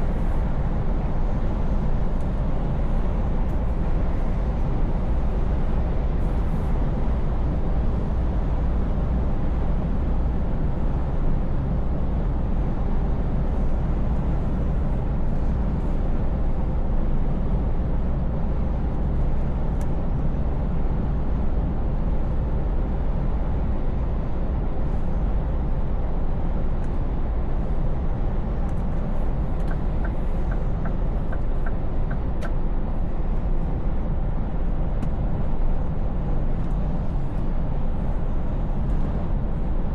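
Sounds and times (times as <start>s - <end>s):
road noise: 0.0s - 39.9s
truck engine drone: 20.8s - 39.9s.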